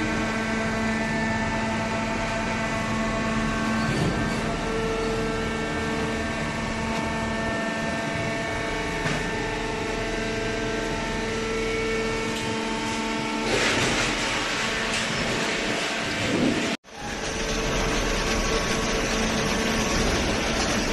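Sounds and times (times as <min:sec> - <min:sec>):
baler machine humming: 0:16.9 - 0:20.9.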